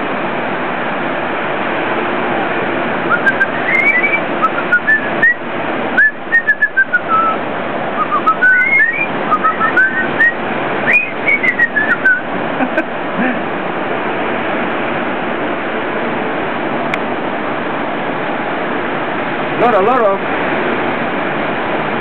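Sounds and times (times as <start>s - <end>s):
steady rushing noise: 0.0s - 22.0s
parrot whistling a tune: 3.1s - 5.4s, 6.0s - 7.4s, 8.0s - 12.3s.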